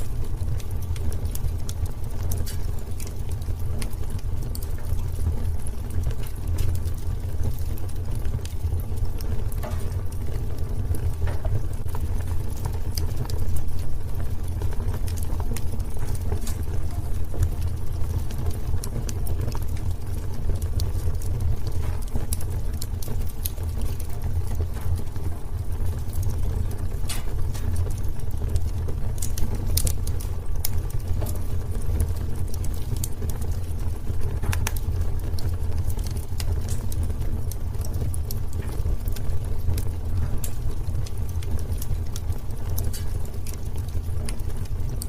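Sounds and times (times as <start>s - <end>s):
fire crackling and popping: 0.0s - 45.0s
fire rumbling: 0.0s - 45.0s.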